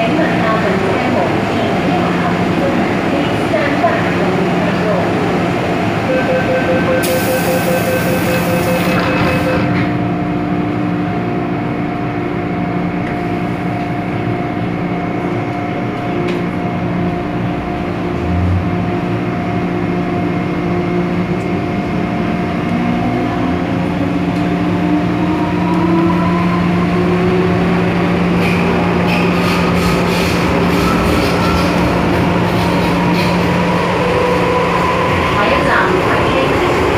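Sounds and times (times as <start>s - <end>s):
train wheels rumbling on rail: 8.2s - 36.9s.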